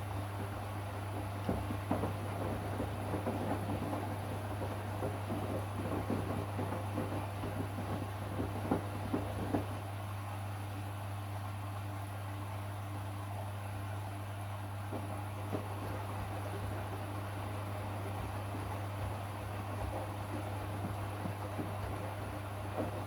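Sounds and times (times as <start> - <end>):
water and laundry sloshing: 0.0 - 10.0, 14.8 - 23.0
washing machine motor hum: 0.0 - 23.0.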